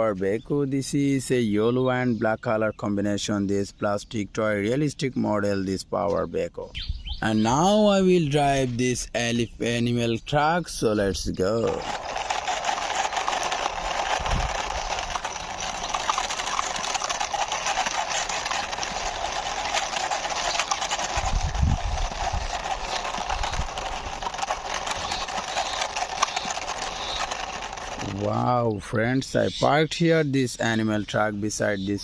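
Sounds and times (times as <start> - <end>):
toy truck wheels rolling: 10.6 - 29.8.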